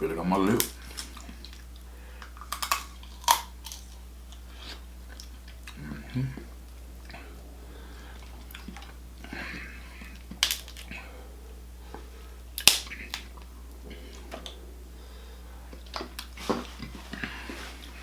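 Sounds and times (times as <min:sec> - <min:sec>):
low steady hum: 0:00.0 - 0:18.0
chewing and lip smacks: 0:00.4 - 0:11.1, 0:11.8 - 0:14.7, 0:15.6 - 0:18.0
shell clicks and cracks: 0:10.3 - 0:10.9, 0:12.6 - 0:13.4.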